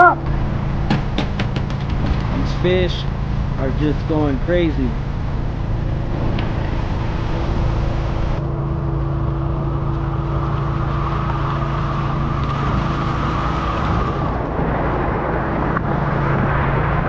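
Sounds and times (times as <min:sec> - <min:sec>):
truck engine humming: 0:00.0 - 0:17.0
water rushing out of tank: 0:09.0 - 0:17.0.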